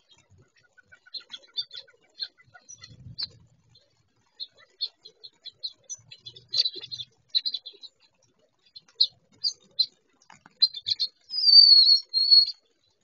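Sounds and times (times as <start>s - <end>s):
birds chirping: 0.0s - 13.0s
wavering high bird call: 11.3s - 12.6s.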